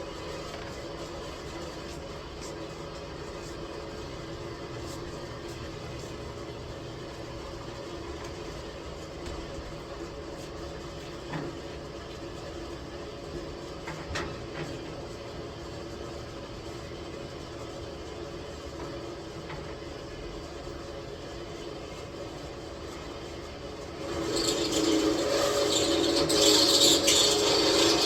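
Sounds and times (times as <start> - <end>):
mechanical hum: 0.0 - 28.0.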